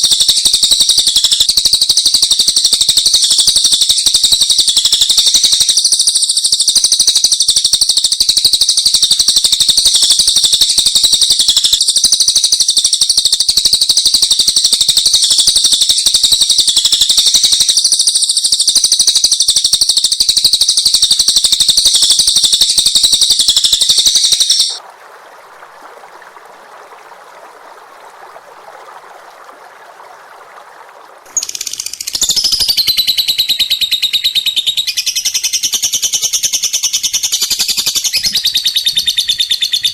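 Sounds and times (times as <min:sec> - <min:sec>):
high-pitched bird trilling: 0:21.9 - 0:24.8.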